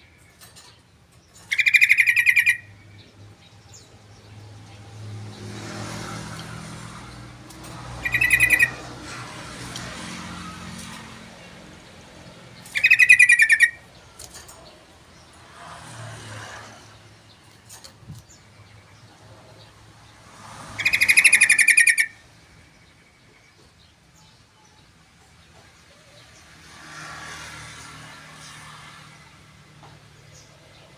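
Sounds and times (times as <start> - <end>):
bird singing fast phrases: 1.3 - 4.4, 8.0 - 8.9, 12.4 - 14.0, 20.6 - 23.0.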